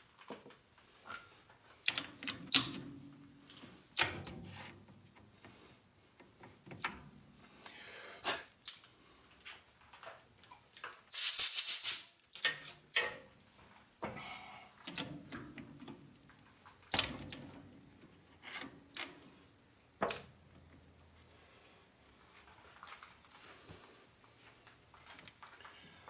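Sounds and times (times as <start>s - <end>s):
short burst of hiss: 11.1s - 12.2s.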